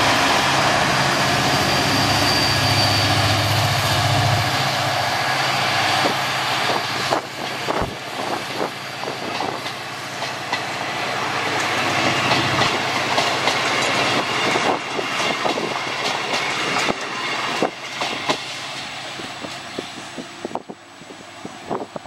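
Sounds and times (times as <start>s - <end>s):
train coaches rolling past: 0.0s - 22.0s
clickety-clack over rail joints: 6.0s - 10.8s, 11.4s - 20.8s.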